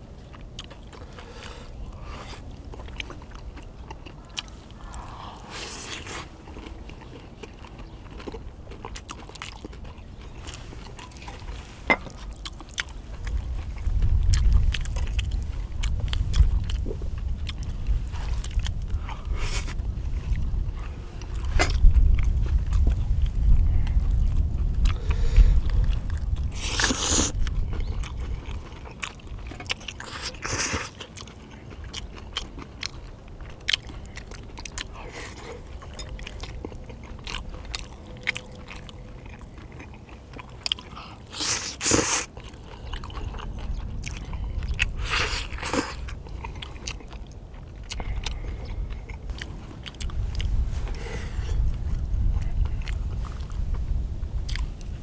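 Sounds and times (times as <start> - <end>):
chewing and biting: 0.0 - 55.0
sharp mouth noises: 21.2 - 31.2, 31.8 - 53.6.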